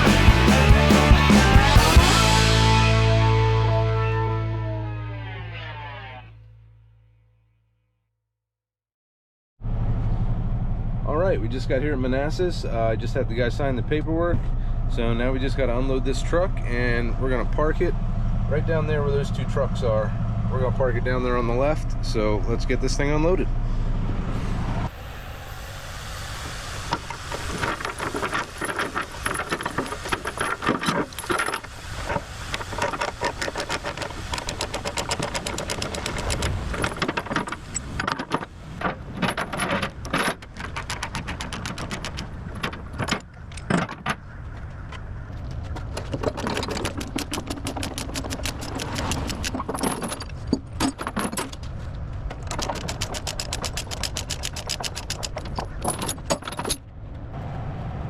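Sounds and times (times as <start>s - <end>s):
chains rattling and clanking: 27.4s - 44.2s, 45.9s - 51.7s, 52.4s - 56.9s.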